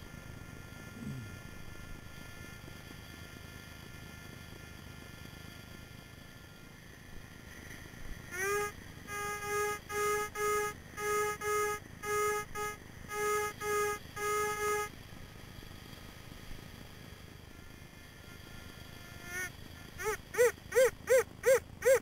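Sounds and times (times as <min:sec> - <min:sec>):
metal detector beeping: 0:08.4 - 0:14.9.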